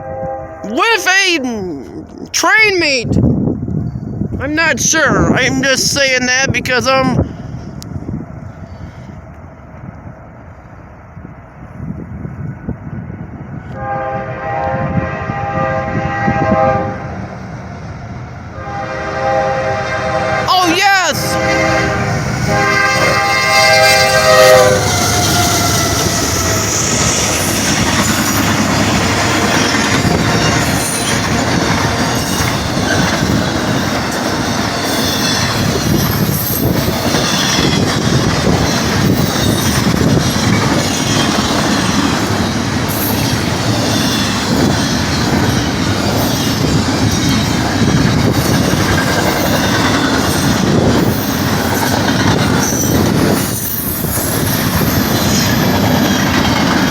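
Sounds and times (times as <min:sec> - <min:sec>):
locomotive horn chord: 0:00.0 - 0:00.8, 0:13.7 - 0:17.2, 0:18.6 - 0:26.0
train wheels rumbling on rail: 0:03.1 - 0:56.9
wheels clacking over rail joints: 0:24.8 - 0:56.9.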